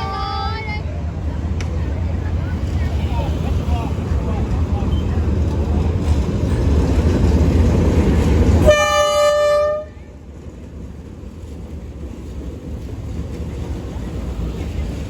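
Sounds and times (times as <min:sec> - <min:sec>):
train rumbling: 0:00.0 - 0:15.0
locomotive horn blast: 0:08.6 - 0:10.1.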